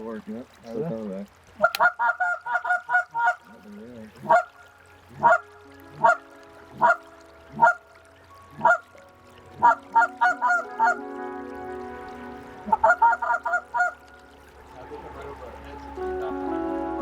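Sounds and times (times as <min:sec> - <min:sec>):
goose call honking: 0:01.6 - 0:03.5, 0:04.2 - 0:04.5, 0:05.1 - 0:07.8, 0:08.6 - 0:08.9, 0:09.6 - 0:11.0, 0:12.6 - 0:14.0.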